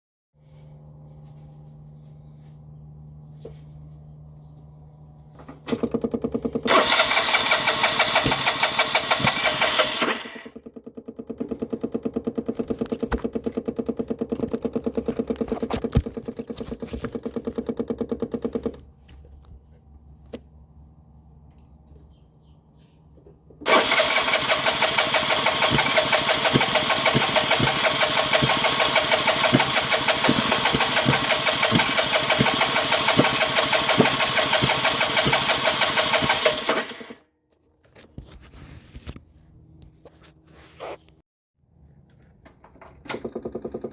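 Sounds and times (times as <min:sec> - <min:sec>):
scooter starter cranking engine: 0:05.6 - 0:18.9, 0:23.6 - 0:37.2.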